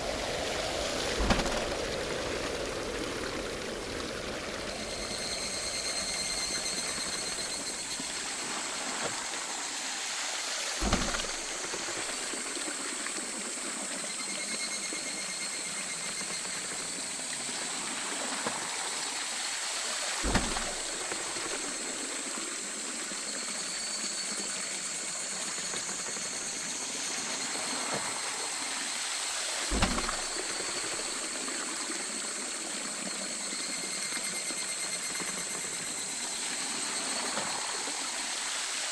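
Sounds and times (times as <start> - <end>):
water flowing and splashing: 0.0 - 38.9
dull thump: 1.2 - 1.8, 10.8 - 12.3, 20.2 - 21.5, 29.7 - 31.0.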